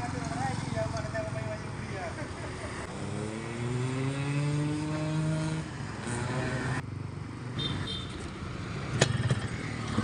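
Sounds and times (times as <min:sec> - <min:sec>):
motorcycle engine revving: 0:02.9 - 0:06.8.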